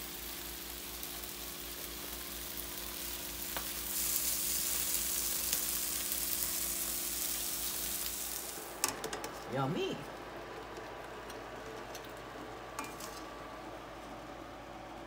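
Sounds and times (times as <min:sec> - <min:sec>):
meat sizzling on a griddle: 0:00.0 - 0:08.8.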